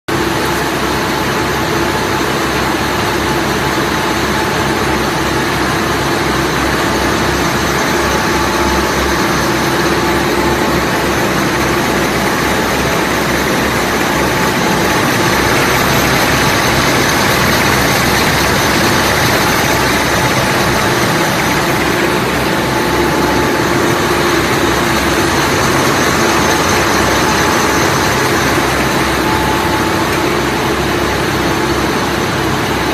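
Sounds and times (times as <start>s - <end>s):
twisting machine humming: 0.1s - 32.9s.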